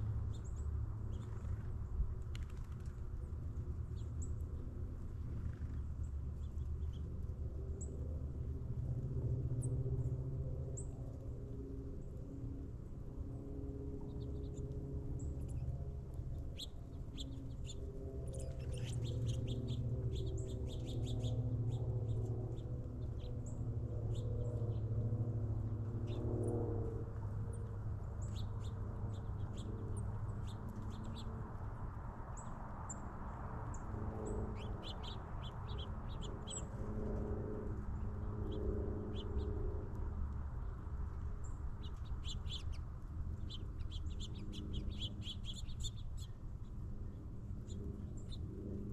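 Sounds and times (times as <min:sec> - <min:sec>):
small birds chirping: 0:00.0 - 0:03.0, 0:05.2 - 0:07.2, 0:14.0 - 0:24.9, 0:28.1 - 0:37.2, 0:37.8 - 0:48.9.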